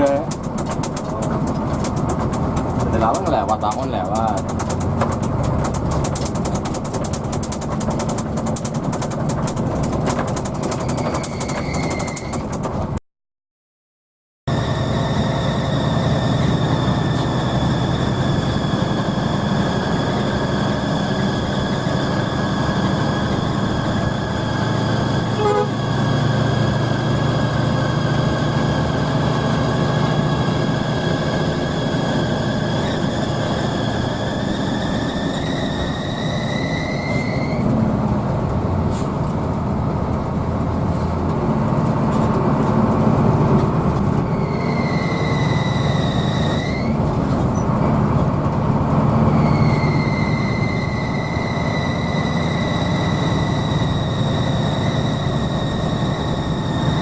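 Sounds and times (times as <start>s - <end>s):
bus engine rumbling: 0.0s - 13.0s, 14.5s - 57.0s
high engine whine: 14.5s - 57.0s.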